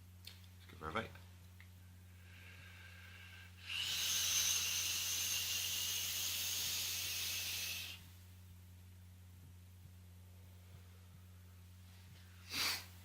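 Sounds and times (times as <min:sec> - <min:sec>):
e-cigarette coil hissing: 0:03.6 - 0:08.1, 0:12.4 - 0:12.9.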